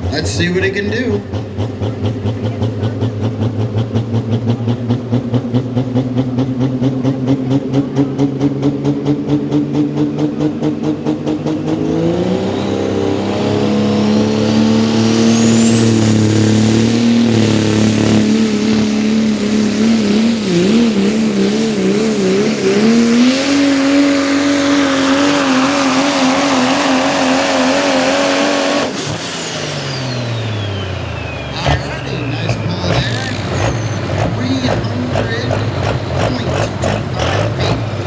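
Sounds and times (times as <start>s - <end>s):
diesel engine at full throttle: 0.0s - 38.0s
high turbo whistle: 14.1s - 34.1s.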